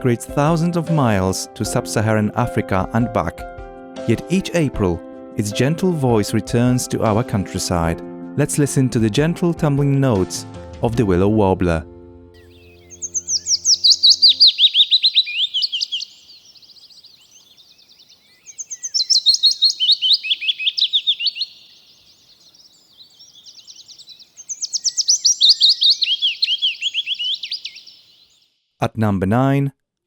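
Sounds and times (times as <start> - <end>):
warbler singing: 12.4 - 28.5.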